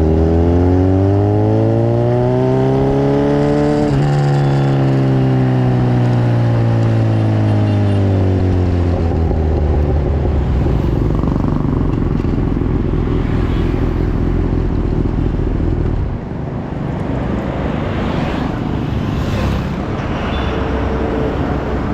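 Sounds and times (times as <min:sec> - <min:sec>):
motorcycle engine low rough rumble: 0:03.6 - 0:17.2.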